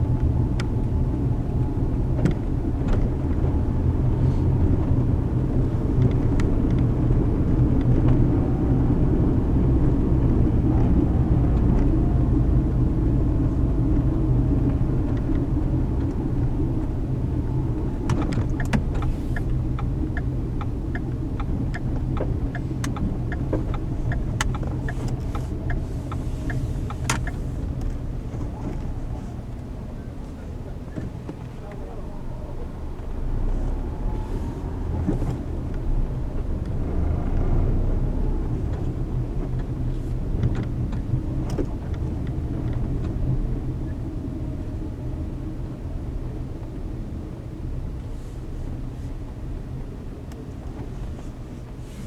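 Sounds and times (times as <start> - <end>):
car engine and tyre rumble: 0.0 - 52.0
light clicks and ticks: 18.0 - 29.6.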